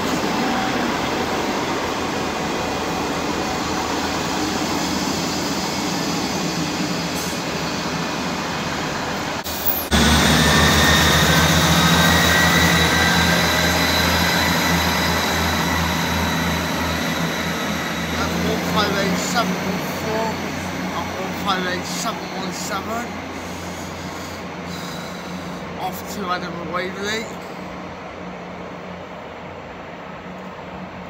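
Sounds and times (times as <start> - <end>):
high whines: 0.0 - 24.1
train wheels rumbling on rail: 0.0 - 31.0.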